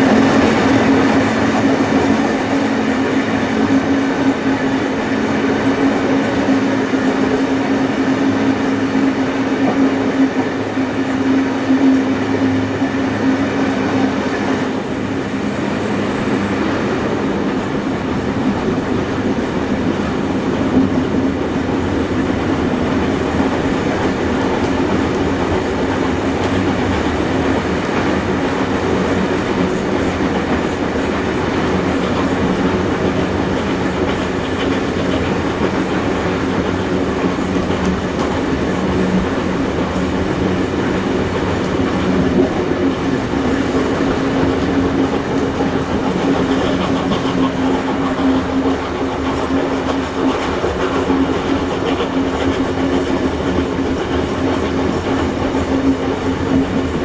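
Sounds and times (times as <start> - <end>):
train running noise with low hum: 0.0 - 57.0
carriage wheels clattering on rails: 16.9 - 57.0.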